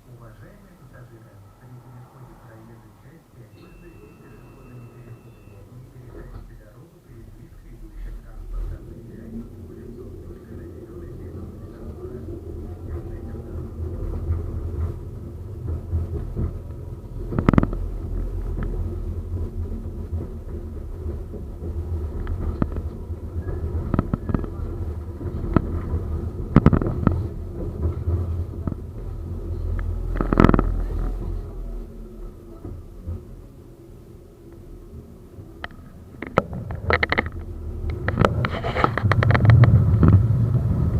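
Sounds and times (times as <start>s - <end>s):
faint steady tone: 0.0s - 13.7s
tram rumbling along track: 0.0s - 40.9s
wheels knocking over rails: 12.4s - 33.4s.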